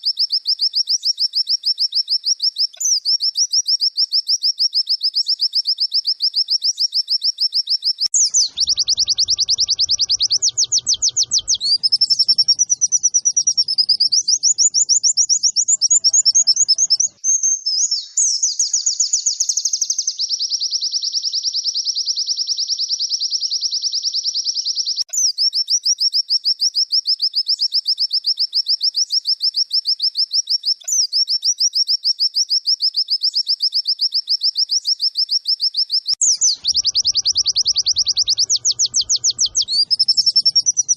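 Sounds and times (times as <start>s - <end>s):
bird fast high trill: 8.2s - 17.2s, 36.2s - 40.9s.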